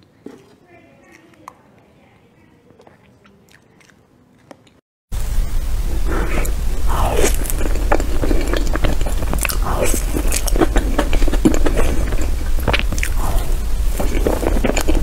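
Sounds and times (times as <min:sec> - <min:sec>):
wet chewing and lip smacks: 0:02.6 - 0:04.8, 0:06.4 - 0:15.0
steady low hum: 0:05.2 - 0:15.0.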